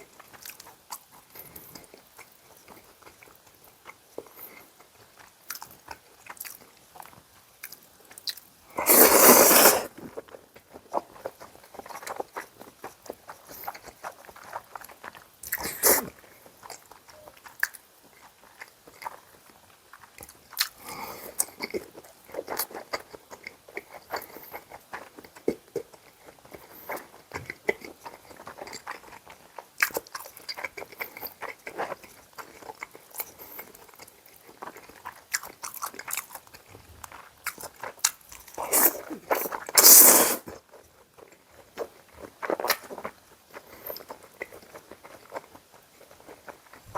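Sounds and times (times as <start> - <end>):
person chewing food: 0.0 - 46.9.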